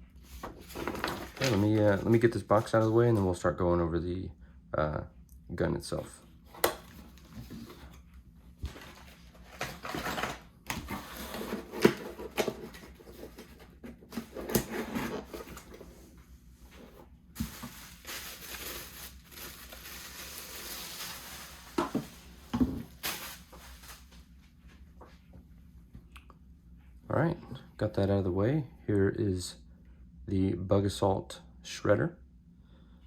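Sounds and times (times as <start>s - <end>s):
cardboard box rustling and scraping: 0.4s - 2.2s, 7.0s - 8.0s, 8.6s - 23.2s.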